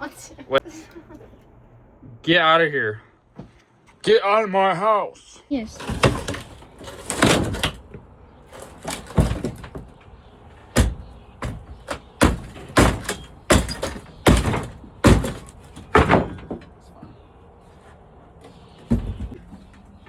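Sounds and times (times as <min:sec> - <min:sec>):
sharp bangs and thuds: 0:05.7 - 0:10.0, 0:10.6 - 0:16.8, 0:18.8 - 0:19.7.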